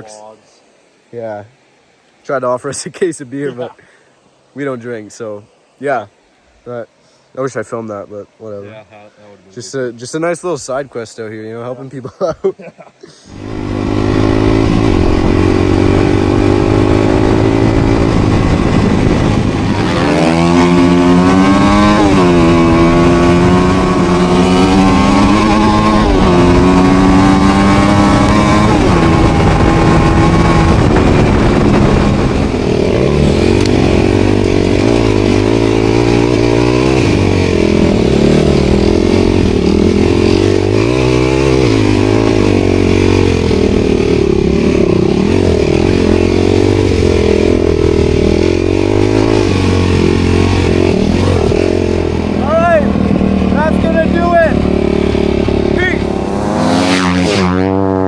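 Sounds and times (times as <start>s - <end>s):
dirt bike engine revving: 13.3s - 58.0s.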